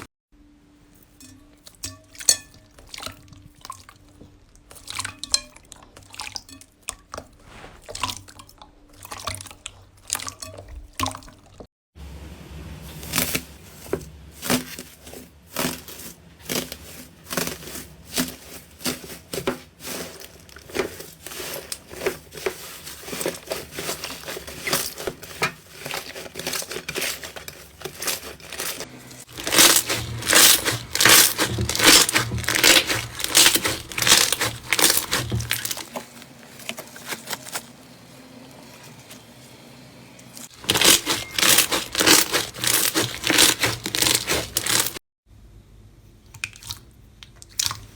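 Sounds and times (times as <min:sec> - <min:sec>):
slime squished by hand: 0:29.3 - 0:36.0, 0:40.5 - 0:45.0.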